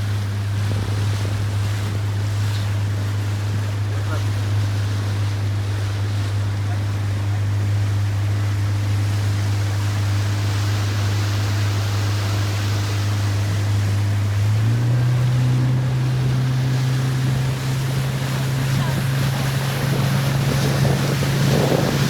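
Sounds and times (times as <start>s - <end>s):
motorboat engine running: 0.0s - 22.0s
water rushing: 0.0s - 22.0s
wind: 0.0s - 22.0s.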